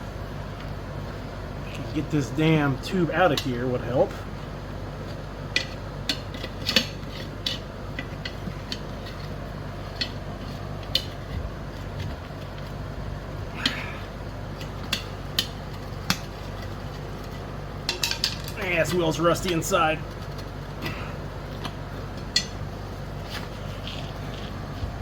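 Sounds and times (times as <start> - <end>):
low hum: 0.0 - 25.0
metal tools clinking on wheel rim: 1.7 - 4.2, 13.6 - 24.8.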